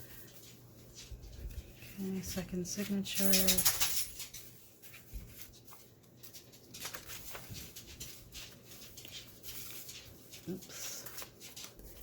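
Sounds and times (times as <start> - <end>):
paper pages rustling: 4.4 - 12.0.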